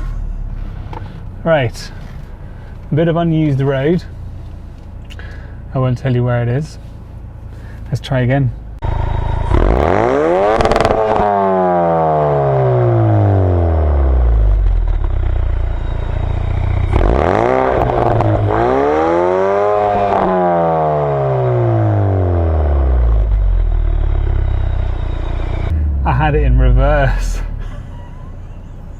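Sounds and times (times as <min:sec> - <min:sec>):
car engine revving hard: 0:08.9 - 0:14.6, 0:16.8 - 0:23.4.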